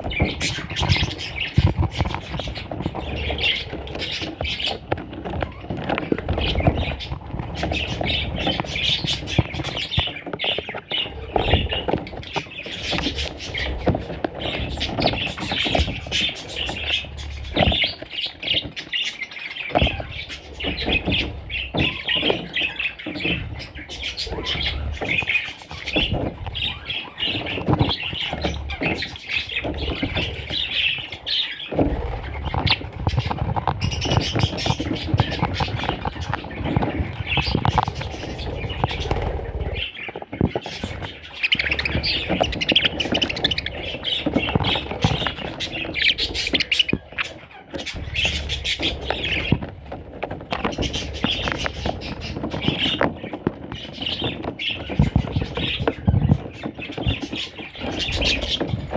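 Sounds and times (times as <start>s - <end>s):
budgerigars chattering and chirping: 0.0s - 58.9s
bird squawks: 33.8s - 49.6s.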